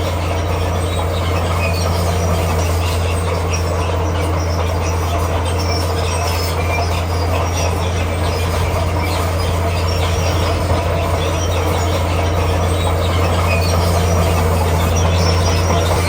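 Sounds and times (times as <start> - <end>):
diesel engine droning low: 0.0 - 16.0
steel tracks squeaking: 0.0 - 16.0.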